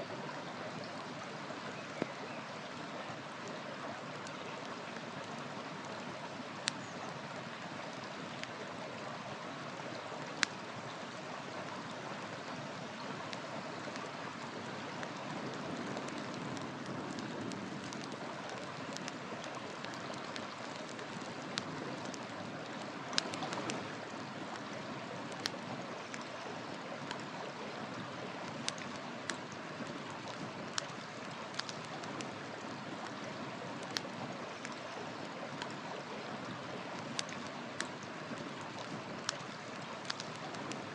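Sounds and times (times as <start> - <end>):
river rushing: 2.6 - 40.9
wood fire crackling: 9.3 - 40.9.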